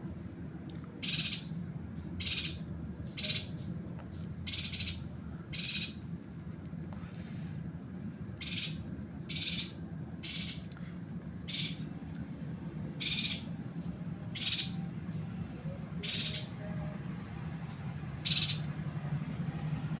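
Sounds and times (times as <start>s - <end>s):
steady low hum: 0.0s - 20.0s
bird chirping: 1.0s - 1.5s, 2.2s - 2.6s, 3.2s - 3.6s, 4.4s - 6.0s, 8.4s - 10.7s, 11.5s - 11.9s, 13.0s - 13.5s, 14.3s - 14.9s, 16.0s - 16.6s, 18.2s - 18.7s.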